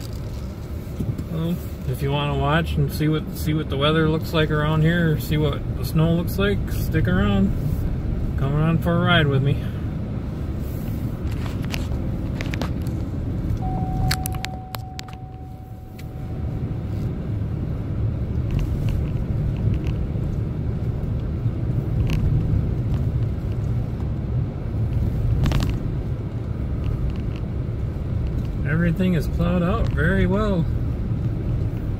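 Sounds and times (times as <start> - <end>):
truck engine and road rumble: 0.0 - 31.9
short steady tone: 13.6 - 17.4.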